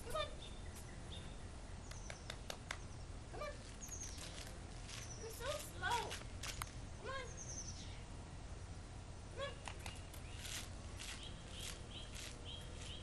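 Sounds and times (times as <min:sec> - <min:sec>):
low outdoor rumble: 0:00.0 - 0:13.0
small bird chirping: 0:00.2 - 0:08.1, 0:09.6 - 0:13.0.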